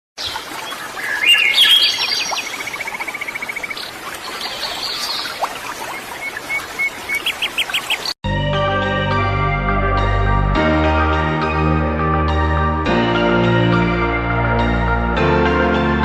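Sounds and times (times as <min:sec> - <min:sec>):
songbirds chirping and calling: 0:00.2 - 0:08.2
fast even bird trill: 0:01.0 - 0:08.2.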